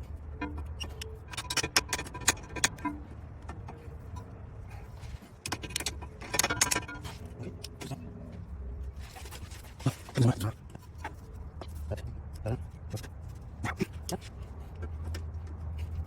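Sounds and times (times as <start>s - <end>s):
metal tools clinking: 0.0s - 8.0s.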